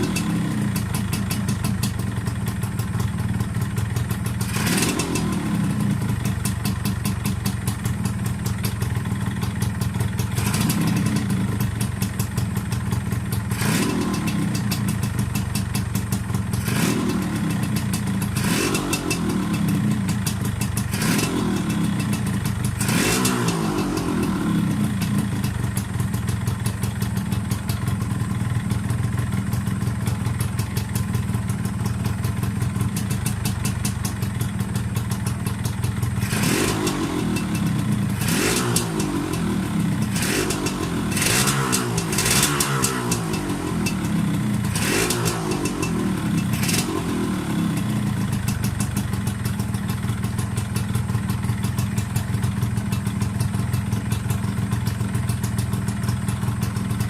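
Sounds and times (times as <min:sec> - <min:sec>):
motorcycle engine idling: 0:00.0 - 0:57.0
engine revving: 0:04.4 - 0:05.9, 0:10.4 - 0:11.4, 0:13.5 - 0:14.6, 0:16.6 - 0:17.6, 0:18.4 - 0:19.9, 0:20.9 - 0:25.1, 0:36.2 - 0:48.1.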